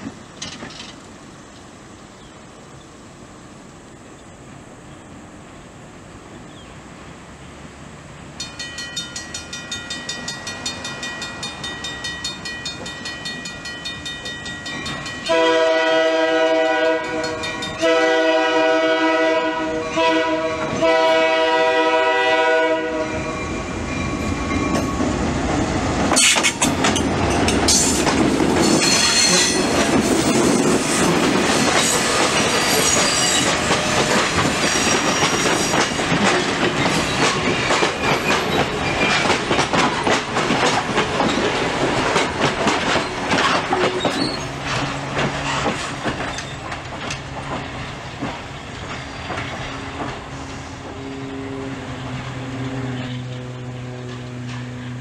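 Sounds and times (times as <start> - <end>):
wheels rattling over rail joints: 0.0 - 2.3, 4.9 - 55.0
diesel locomotive passing: 0.0 - 55.0
train horn blast: 15.2 - 23.7, 50.4 - 55.0
high wheel squeal: 23.1 - 25.2, 30.8 - 35.9, 36.8 - 39.3, 43.4 - 46.7.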